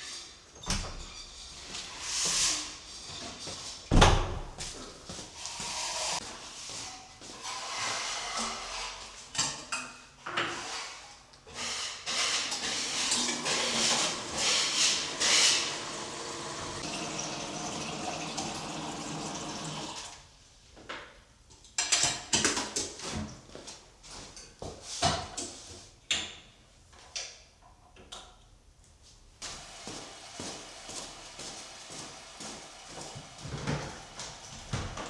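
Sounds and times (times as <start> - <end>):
water running: 3.9 - 6.2, 12.9 - 20.2, 29.4 - 35.0.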